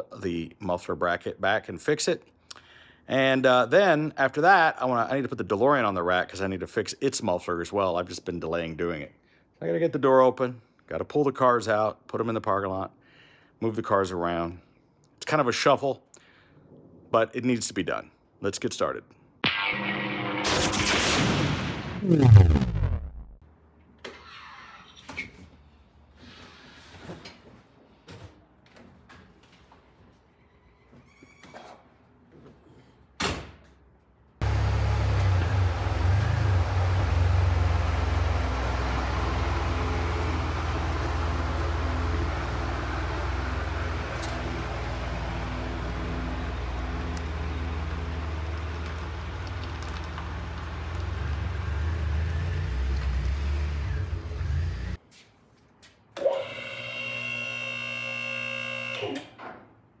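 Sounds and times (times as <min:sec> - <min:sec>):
car engine rumbling: 0:34.4 - 0:55.0.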